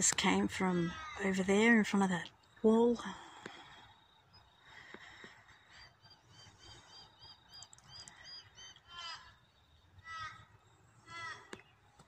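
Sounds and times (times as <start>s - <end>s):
harsh falling bird calls: 3.2s - 12.0s.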